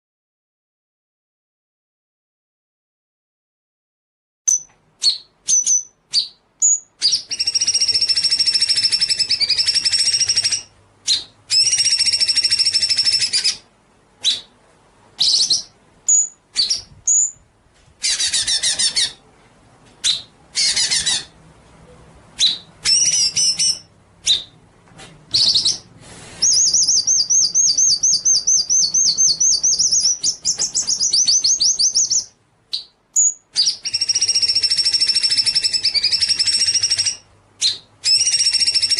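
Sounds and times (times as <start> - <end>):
songbird singing with trills: 4.5 - 13.6, 15.2 - 17.4, 22.4 - 24.6, 25.3 - 38.9.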